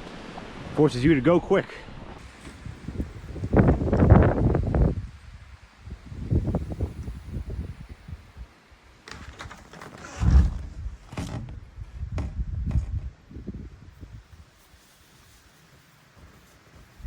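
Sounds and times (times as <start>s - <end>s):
knocks and rustles: 2.2s - 4.9s, 9.0s - 13.4s
wind buffeting microphone: 2.2s - 8.5s, 10.1s - 14.5s.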